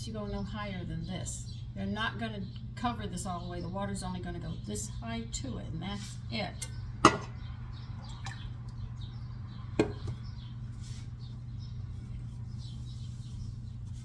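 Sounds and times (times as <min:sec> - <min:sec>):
steady low hum: 0:00.0 - 0:14.0
metal cookware clanking: 0:07.0 - 0:07.4.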